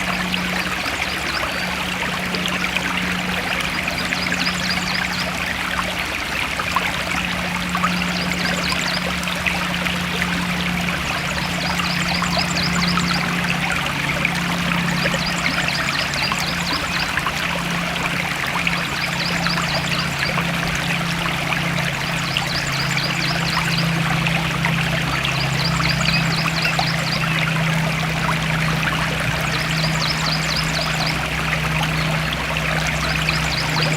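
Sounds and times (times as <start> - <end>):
low hum: 0.0 - 33.9
stream flowing and trickling: 0.0 - 33.9.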